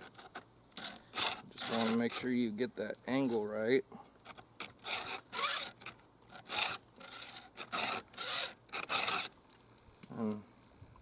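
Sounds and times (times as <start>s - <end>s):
file rasping on saw chain: 0.0s - 2.5s, 4.6s - 9.4s.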